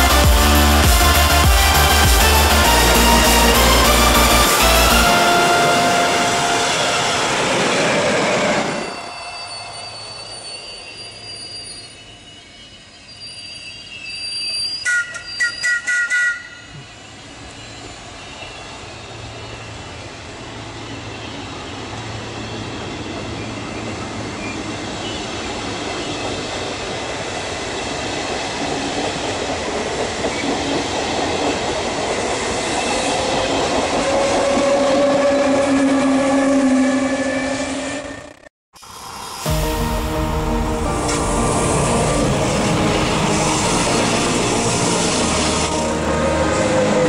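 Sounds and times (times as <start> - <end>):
electric locomotive whine: 0.0 - 47.0
train wheels rolling past: 2.7 - 16.5.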